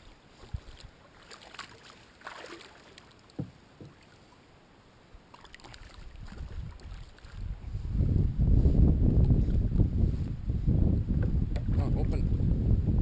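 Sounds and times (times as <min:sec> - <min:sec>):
water lapping: 0:00.0 - 0:04.5, 0:05.2 - 0:07.6
water splash: 0:00.5 - 0:04.2, 0:05.3 - 0:07.5
dull thump: 0:03.4 - 0:04.0
light knocks on kayak: 0:03.4 - 0:04.0.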